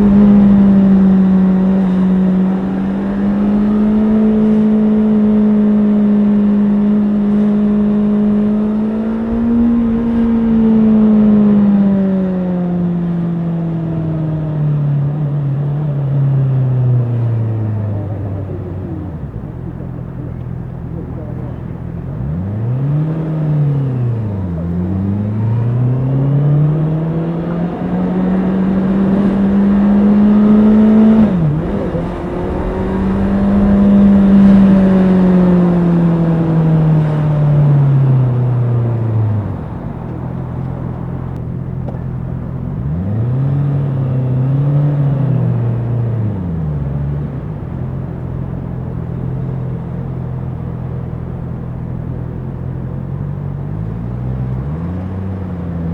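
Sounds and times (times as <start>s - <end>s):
motorcycle engine revving and idling: 0.0s - 55.9s.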